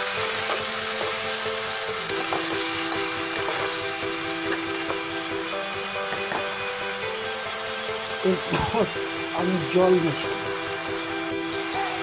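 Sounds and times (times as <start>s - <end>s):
vegetables sizzling in oil: 0.0s - 12.0s
spatula scraping and tapping pan: 2.1s - 3.8s.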